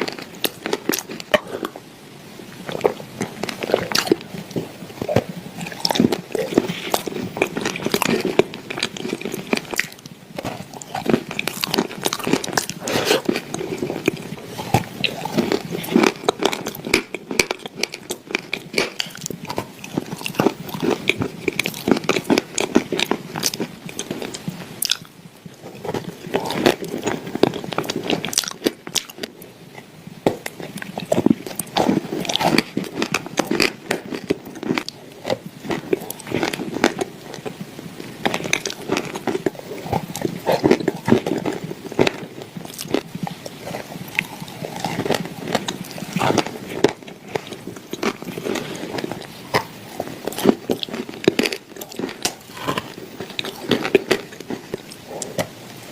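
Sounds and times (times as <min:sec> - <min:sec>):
crunching and chewing clay: 0:00.0 - 0:01.8, 0:02.5 - 0:55.9.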